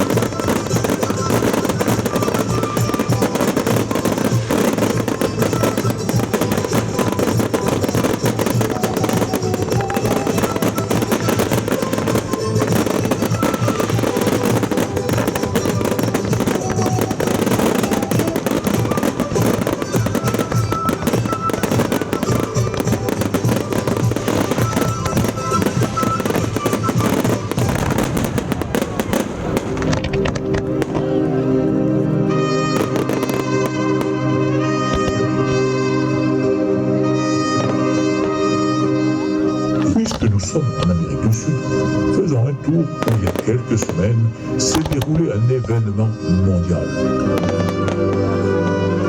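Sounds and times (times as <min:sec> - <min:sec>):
fireworks crackling and popping: 0:00.0 - 0:49.0
music playing: 0:00.0 - 0:49.0.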